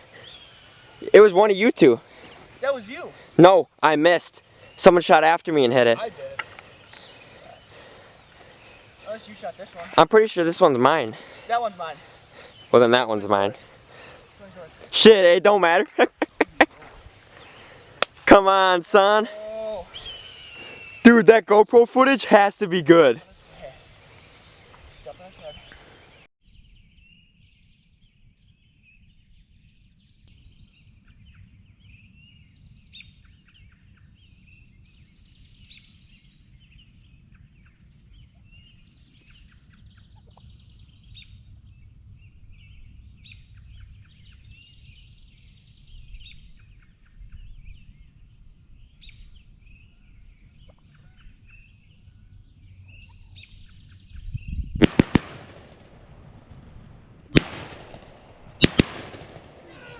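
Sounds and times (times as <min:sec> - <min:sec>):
songbirds singing: 0:00.0 - 0:55.1
shotgun blasts: 0:54.8 - 0:59.9.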